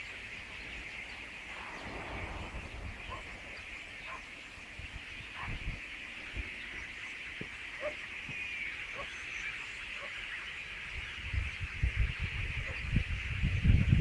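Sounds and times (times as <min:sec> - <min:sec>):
flock of starlings chattering: 0:00.0 - 0:14.0
low rumbling thumps: 0:01.4 - 0:06.5.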